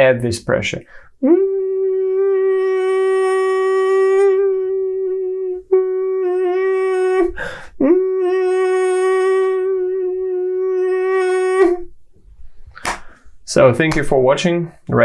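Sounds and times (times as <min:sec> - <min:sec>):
man humming mosquito buzz: 0:01.2 - 0:12.0
quick breath in: 0:12.4 - 0:13.4.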